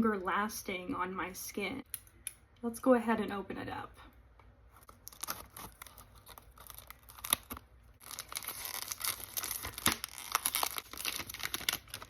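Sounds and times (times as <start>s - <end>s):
wrapping being torn and crinkled: 4.8s - 12.0s.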